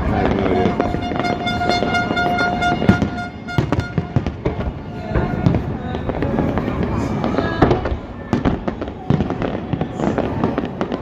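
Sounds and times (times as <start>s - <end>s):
fireworks bangs and crackles: 0.0s - 11.0s
steady horn note: 0.8s - 4.2s.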